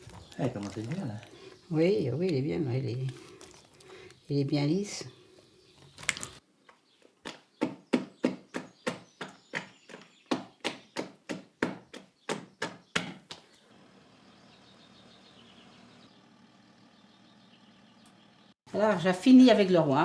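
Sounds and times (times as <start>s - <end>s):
batter beaten by hand in basin: 7.2s - 13.5s.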